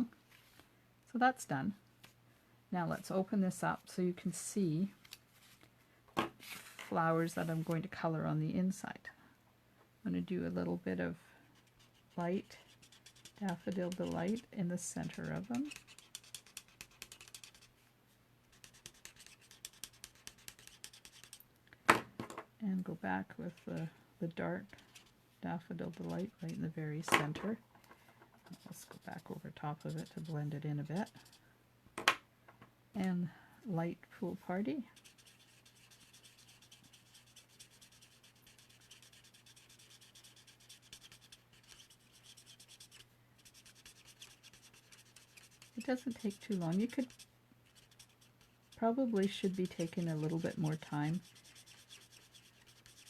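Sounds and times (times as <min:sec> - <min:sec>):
marker tip scratching on card: 0:11.7 - 0:17.7, 0:18.5 - 0:21.4, 0:28.5 - 0:31.4, 0:35.0 - 0:53.0.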